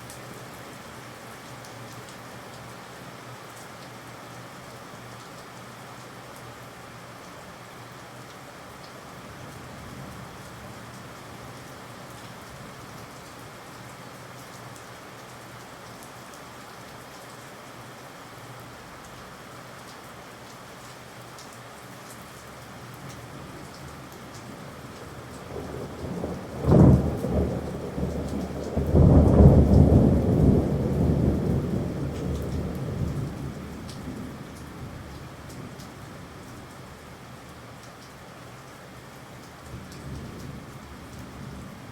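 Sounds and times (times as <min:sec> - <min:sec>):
steady rain falling: 0:00.0 - 0:41.9
thunder crack and rolling peal: 0:25.4 - 0:33.3.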